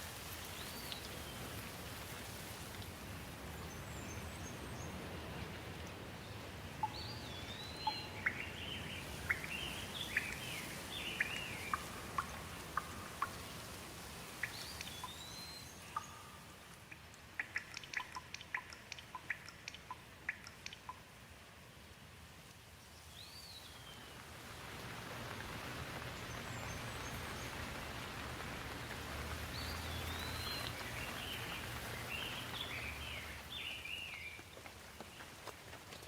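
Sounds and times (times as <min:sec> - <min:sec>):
steady rain: 0:00.0 - 0:36.0
birds whistling and chirping: 0:06.8 - 0:12.4
water drops dripping: 0:11.2 - 0:13.6, 0:14.4 - 0:15.2, 0:15.9 - 0:21.2.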